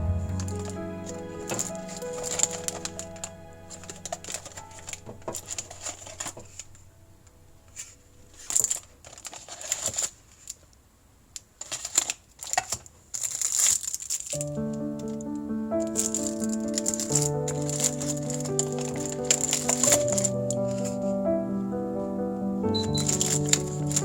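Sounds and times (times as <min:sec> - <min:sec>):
background music: 0:00.0 - 0:07.8, 0:14.4 - 0:24.0.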